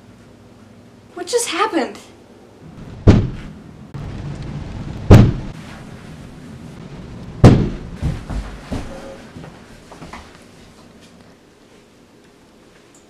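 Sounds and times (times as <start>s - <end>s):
loud deep bangs: 2.7s - 5.6s, 6.8s - 8.7s
soft thumps: 3.1s - 3.5s.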